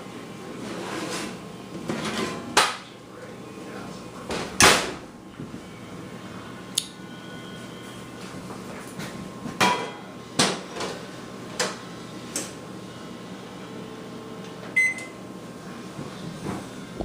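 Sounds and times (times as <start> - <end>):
kitchen knocks and clatters: 9.5 - 11.0.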